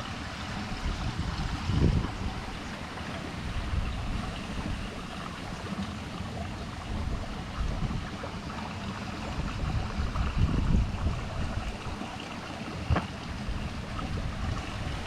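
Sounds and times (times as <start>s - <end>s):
moving water: 0.0s - 15.0s
wind rumble on microphone: 0.0s - 15.0s.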